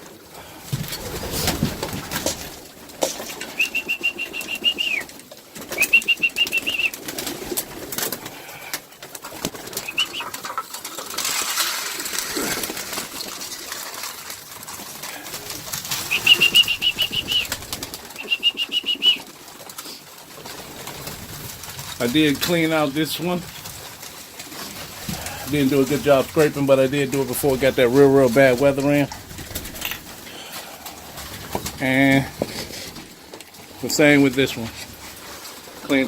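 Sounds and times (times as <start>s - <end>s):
pigeons flapping wings: 0.0s - 36.0s
high trilling whistle: 3.6s - 5.1s, 5.8s - 6.9s, 16.1s - 17.5s, 18.2s - 19.2s.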